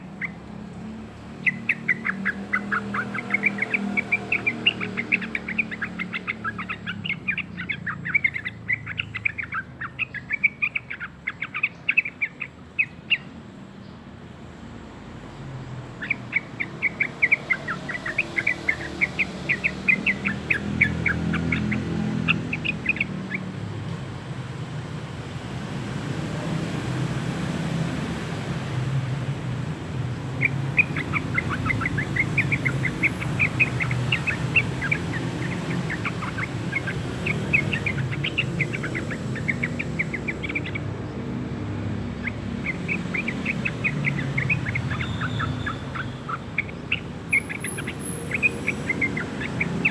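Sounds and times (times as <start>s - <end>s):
bird chirping: 0.0s - 49.9s.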